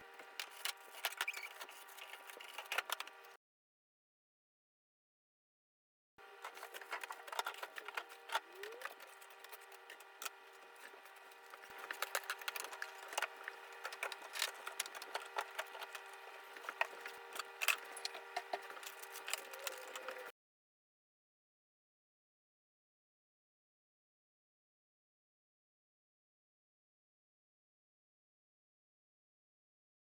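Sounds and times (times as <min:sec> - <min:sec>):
steady hum: 0:06.2 - 0:20.3.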